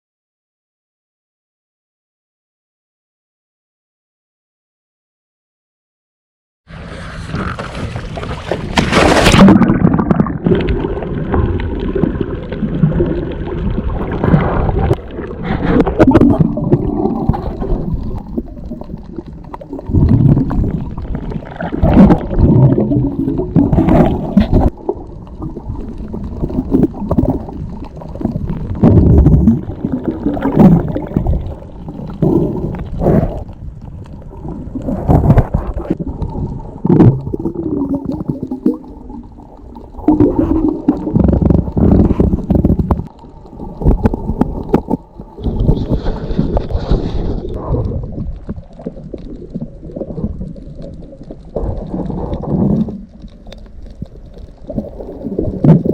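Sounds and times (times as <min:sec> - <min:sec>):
water splash: 0:06.7 - 0:33.5
muffled underwater gurgling and sloshing: 0:06.7 - 0:55.9.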